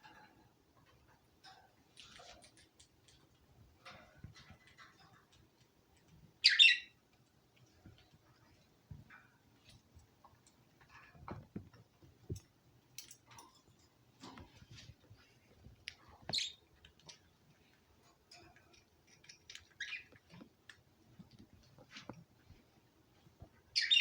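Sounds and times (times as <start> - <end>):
faint clicks and scratches: 0.0 - 6.4, 7.0 - 23.9
pet birds chirping: 6.0 - 9.8, 15.2 - 17.7, 18.5 - 20.8, 23.6 - 24.0.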